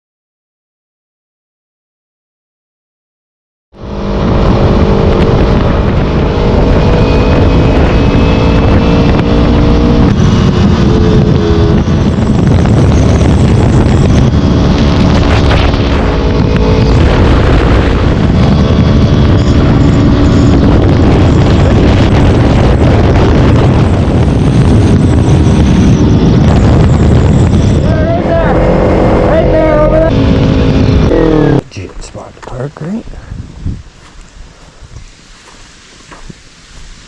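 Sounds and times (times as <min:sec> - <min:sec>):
motorcycle engine running: 0:03.8 - 0:31.6
wind rumble on microphone: 0:03.8 - 0:37.0.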